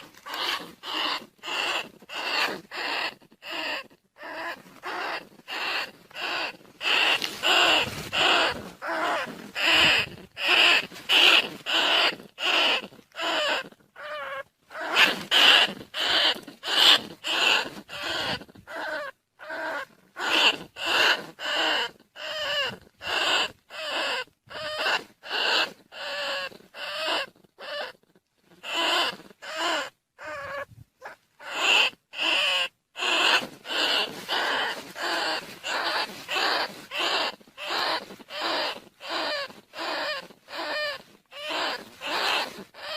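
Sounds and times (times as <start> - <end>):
rats squeaking: 0.0 - 42.9.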